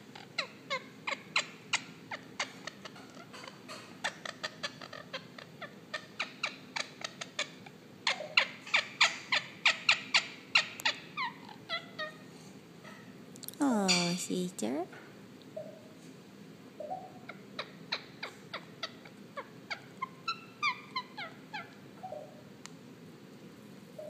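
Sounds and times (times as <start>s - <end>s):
parakeet chirping: 13.7s - 14.4s, 16.8s - 22.3s.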